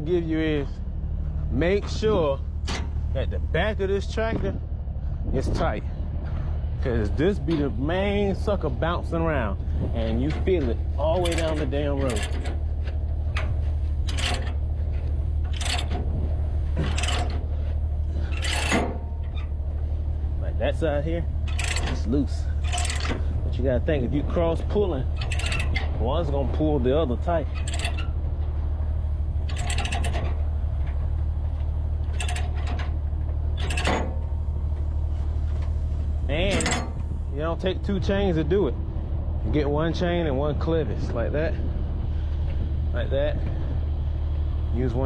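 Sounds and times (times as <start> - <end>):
diesel engine idling: 0.0 - 45.0
metal chains clanking: 7.1 - 19.7, 20.7 - 34.8, 36.3 - 37.4.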